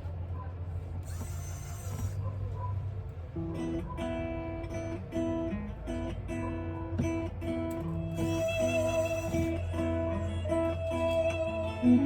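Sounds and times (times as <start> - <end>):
acoustic guitar strumming chords: 3.4 - 12.0.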